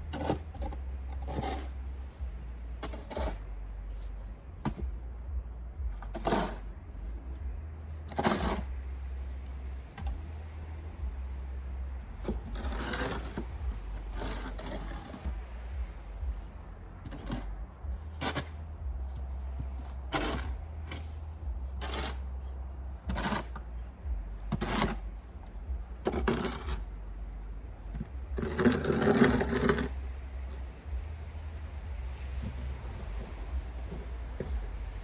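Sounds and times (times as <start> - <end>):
snow shovel scraping pavement: 0.0 - 1.8, 6.1 - 6.6, 8.1 - 8.7, 12.2 - 15.4, 17.0 - 17.5, 18.1 - 18.6, 19.2 - 21.2, 21.8 - 22.3, 23.0 - 25.0, 26.0 - 26.8, 27.9 - 30.7.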